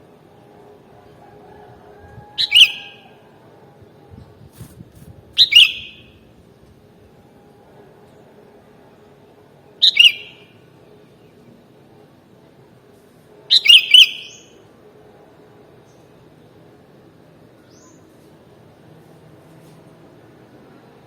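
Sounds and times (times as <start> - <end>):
faint steady background noise: 0.0 - 21.0
bulbul calling: 2.4 - 3.1, 5.4 - 6.2, 9.8 - 10.5, 13.5 - 14.5.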